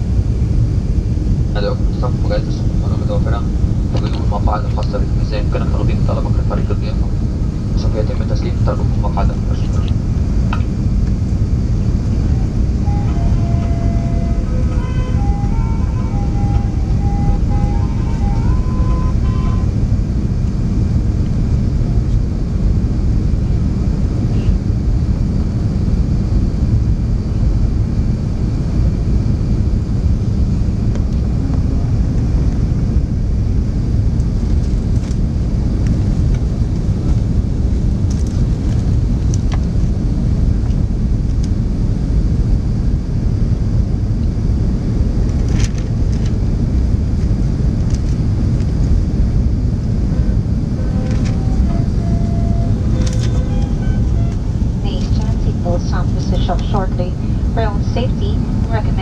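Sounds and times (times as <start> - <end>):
airplane cabin engine rumble: 0.0 - 59.0
faint cabin background music: 1.4 - 22.1, 49.6 - 59.0.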